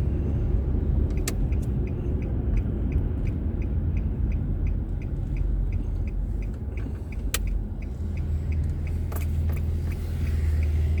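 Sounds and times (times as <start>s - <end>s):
car engine and road rumble: 0.0s - 11.0s
indicator ticking: 1.1s - 9.0s.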